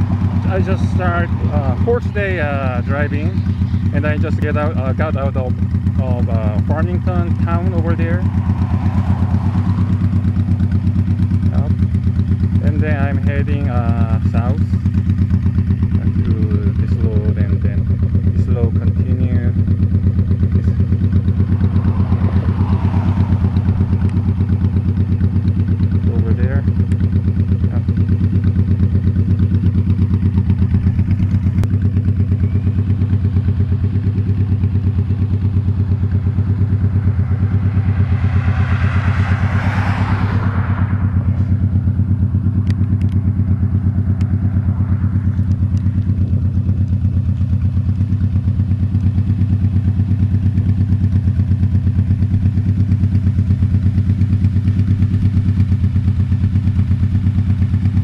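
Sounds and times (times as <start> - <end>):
motorcycle engine cruising: 0.0 - 58.0
rushing noise: 20.7 - 25.8, 35.5 - 46.8.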